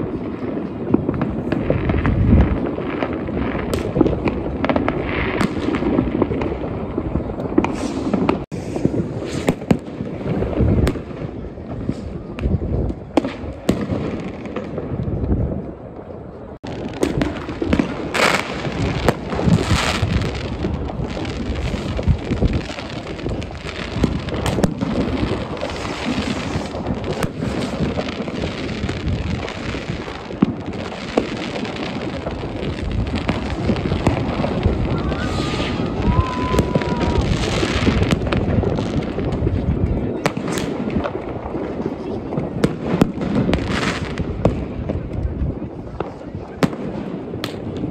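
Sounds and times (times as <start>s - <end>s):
fireworks bangs and crackling: 0.0s - 47.9s.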